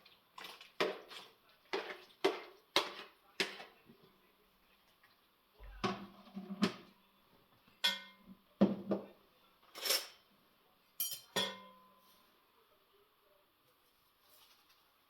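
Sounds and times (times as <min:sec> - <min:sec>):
metal cookware clanking: 0:07.8 - 0:08.3, 0:09.7 - 0:10.3, 0:11.0 - 0:12.0.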